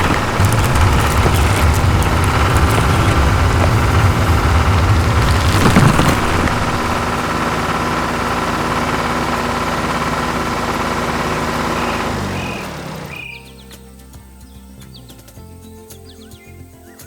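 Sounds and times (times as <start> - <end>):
harvester engine idling: 0.0 - 13.4.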